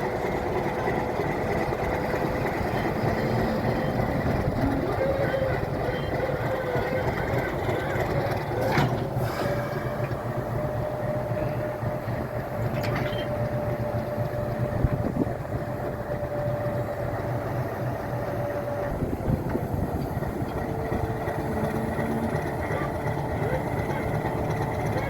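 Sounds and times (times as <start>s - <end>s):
diesel locomotive rumbling: 0.0s - 25.0s.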